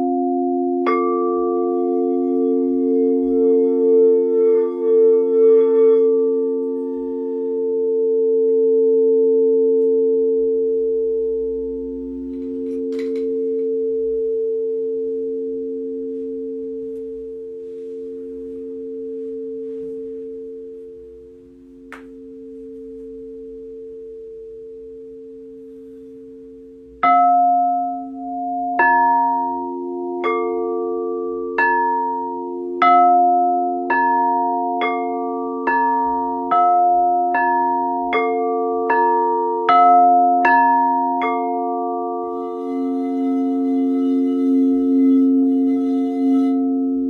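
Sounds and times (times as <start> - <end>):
singing bowls ringing: 0.0 - 47.0
struck metal notes: 42.3 - 47.0.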